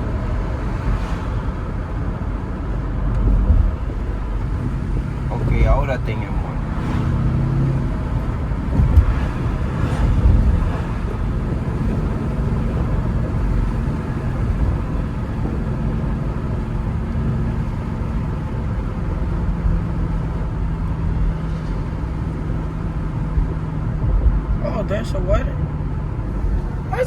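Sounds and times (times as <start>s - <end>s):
car engine hum: 0.0s - 27.0s
road noise: 0.0s - 27.0s.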